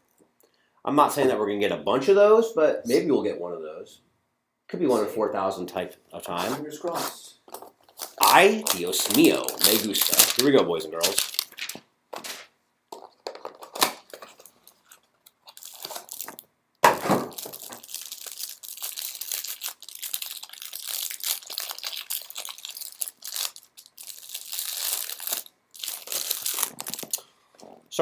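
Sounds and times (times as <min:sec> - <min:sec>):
packaging crackling and rustling: 0:07.6 - 0:27.2
wrapper crinkling: 0:07.8 - 0:27.3
packaging ripping: 0:07.9 - 0:12.5, 0:13.6 - 0:27.2.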